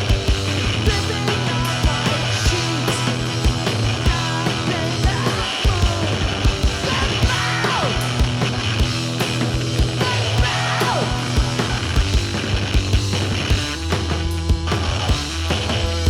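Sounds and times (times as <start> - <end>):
driving drum beat: 0.0 - 16.0
held bass notes: 0.0 - 16.0
punk rock band playing: 0.0 - 16.0
person singing: 0.8 - 8.2, 10.0 - 11.6.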